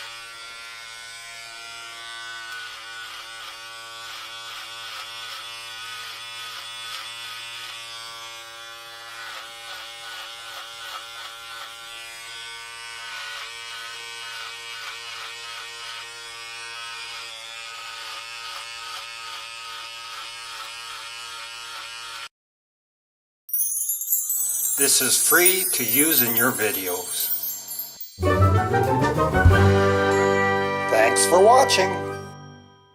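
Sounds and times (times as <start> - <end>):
electric hair clippers buzzing: 0.0 - 22.3.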